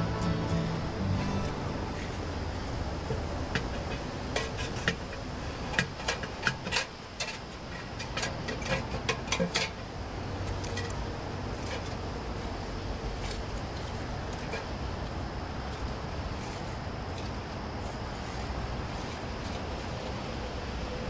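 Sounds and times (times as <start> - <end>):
steady low rumble: 0.0 - 5.7.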